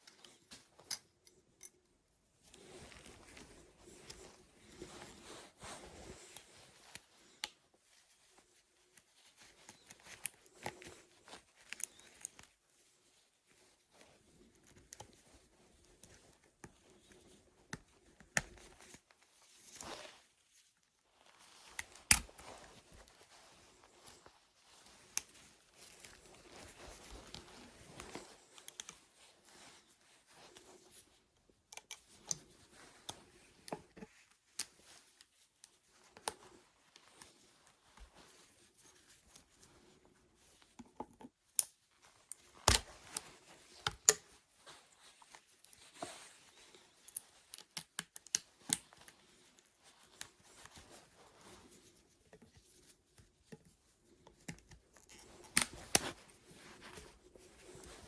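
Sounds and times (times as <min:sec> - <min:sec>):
small clicks snips and scrapes: 0:00.0 - 0:04.3, 0:24.9 - 0:29.0, 0:31.7 - 0:36.5, 0:40.8 - 0:44.2, 0:45.3 - 0:51.5, 0:52.3 - 0:58.0.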